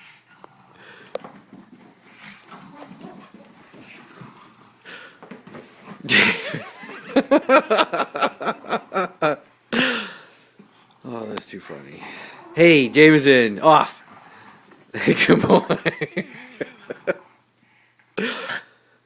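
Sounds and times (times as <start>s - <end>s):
puppies making play noises: 0.3s - 6.1s.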